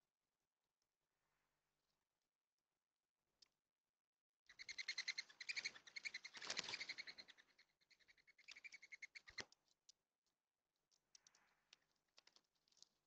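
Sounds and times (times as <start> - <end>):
birds twittering rapidly: 4.6 - 9.4.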